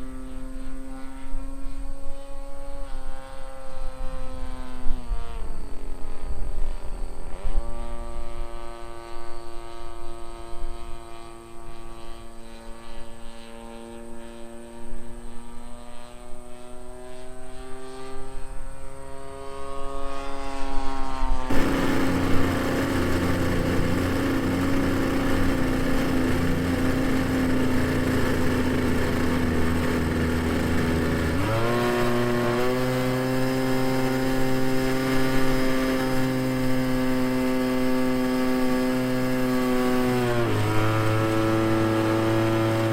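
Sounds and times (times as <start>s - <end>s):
model airplane engine droning: 0.0s - 42.9s.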